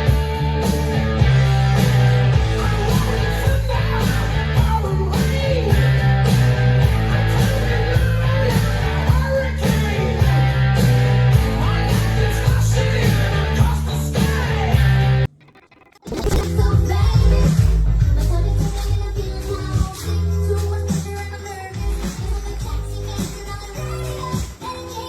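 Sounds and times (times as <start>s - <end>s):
strong bass line: 0.0s - 15.1s
rock music: 0.0s - 19.7s
guitar: 0.0s - 25.0s.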